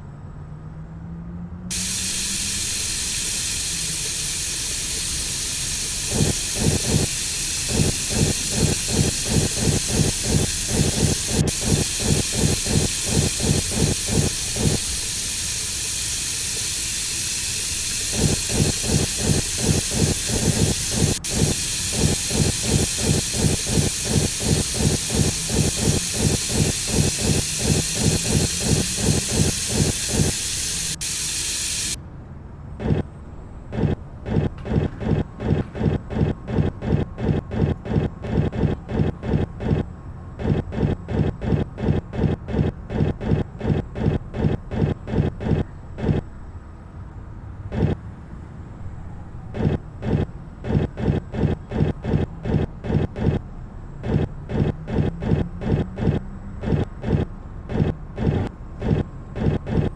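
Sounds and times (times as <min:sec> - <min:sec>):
washing machine water intake hiss: 0:01.7 - 0:32.0.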